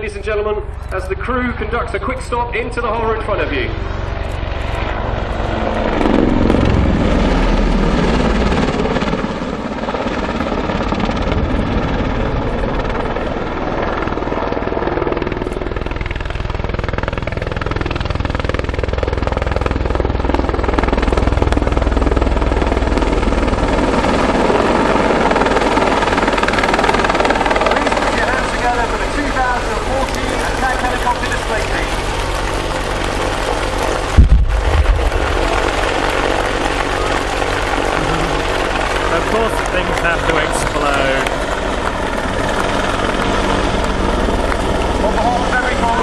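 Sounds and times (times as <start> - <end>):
helicopter rotor and engines: 0.0 - 46.0.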